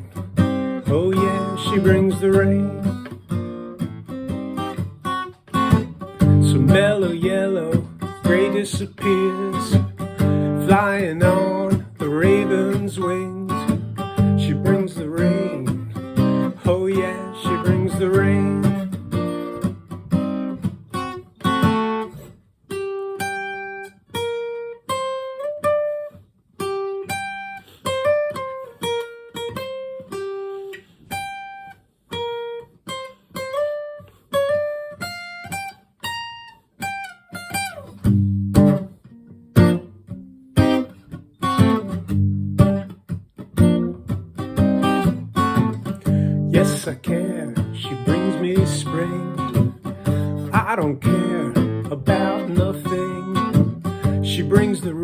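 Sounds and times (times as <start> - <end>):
acoustic guitar playing: 0.0 - 55.0.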